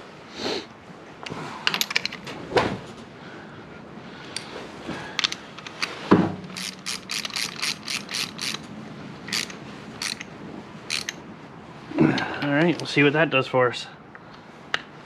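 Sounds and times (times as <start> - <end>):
ratchet wrench clicking: 6.5 - 8.7, 9.3 - 10.3, 10.9 - 11.2.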